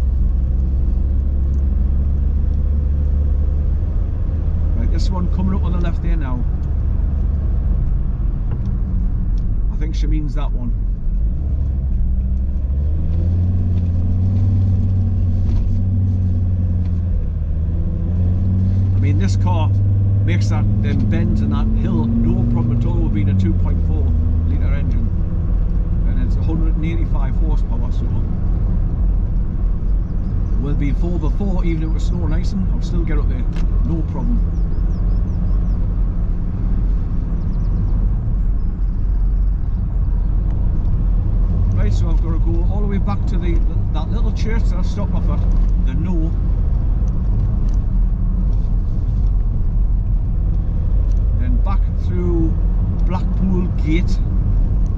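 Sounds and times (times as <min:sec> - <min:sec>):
car engine drone inside cabin: 0:00.0 - 0:54.9
road noise: 0:00.0 - 0:54.9.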